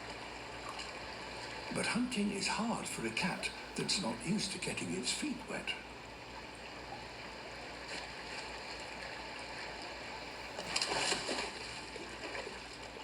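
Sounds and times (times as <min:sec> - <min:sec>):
river sounds through speaker: 0:01.0 - 0:06.3.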